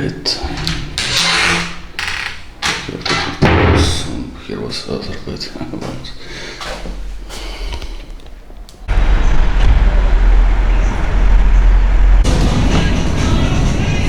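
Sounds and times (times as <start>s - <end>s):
vehicle rumble and road noise: 8.8s - 14.0s.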